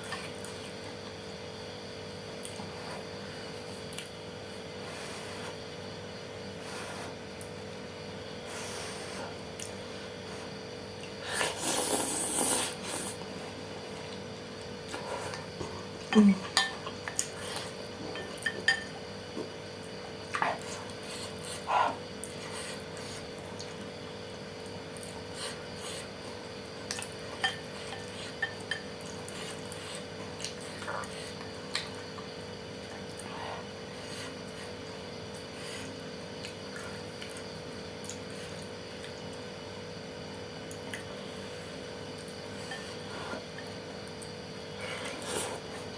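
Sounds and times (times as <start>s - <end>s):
steady faint hum: 0.0s - 45.9s
slurping and chewing noodles: 8.4s - 13.3s
utensil clinking against bowl: 16.1s - 17.0s, 18.1s - 19.0s.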